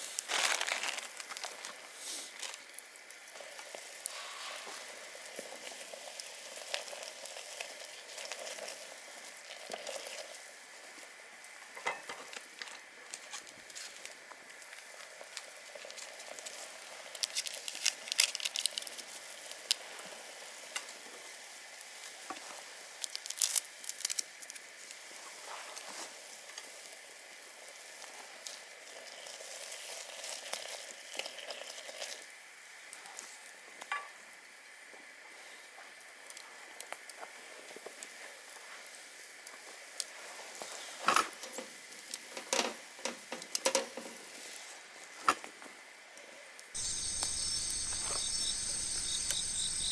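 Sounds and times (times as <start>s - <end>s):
food sizzling over campfire: 0.0s - 11.7s, 13.6s - 25.2s, 26.6s - 32.9s, 46.8s - 49.9s
fire crackling and clicking: 46.8s - 49.9s.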